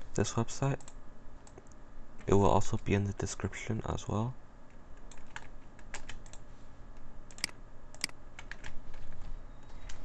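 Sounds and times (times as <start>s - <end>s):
computer keyboard typing: 5.0s - 6.4s, 7.3s - 10.0s.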